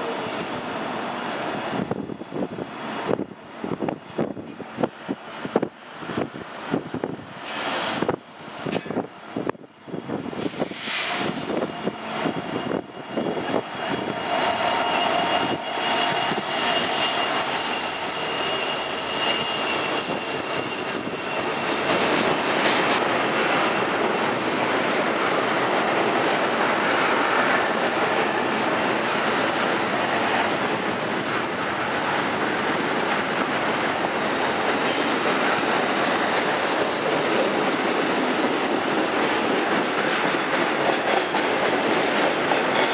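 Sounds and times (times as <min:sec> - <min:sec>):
train wheel squeal: 0:10.4 - 0:24.2.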